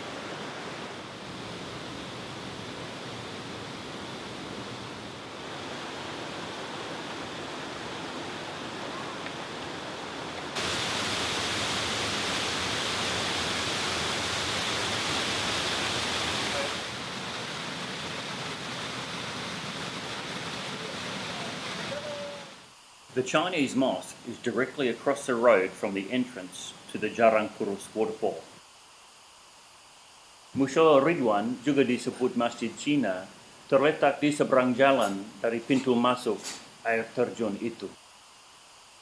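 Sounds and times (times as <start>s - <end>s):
waterfall rushing: 0.0s - 22.7s.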